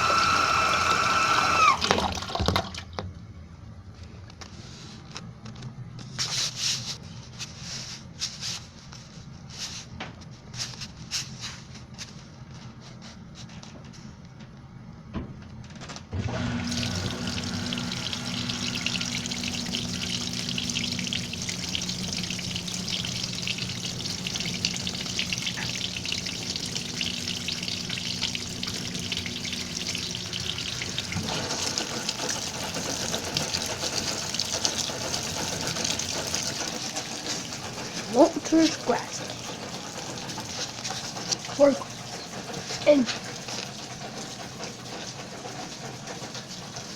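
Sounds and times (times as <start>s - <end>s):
rush of incoming water: 16.6s - 25.8s
water splashing and trickling: 16.7s - 46.9s.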